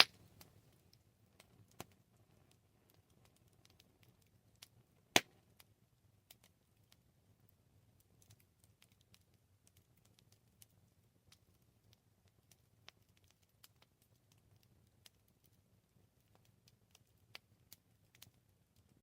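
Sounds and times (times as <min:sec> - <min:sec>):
sharp pop of burning wood: 0:00.0 - 0:00.5, 0:05.1 - 0:05.4
campfire crackling: 0:00.0 - 0:19.0.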